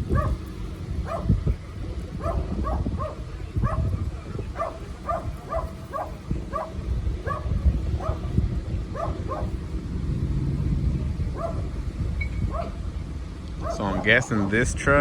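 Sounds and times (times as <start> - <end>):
steady low rumble: 0.0 - 15.0
dog barking: 0.1 - 1.5, 2.1 - 9.6, 11.3 - 11.7, 12.5 - 12.8, 13.6 - 14.3.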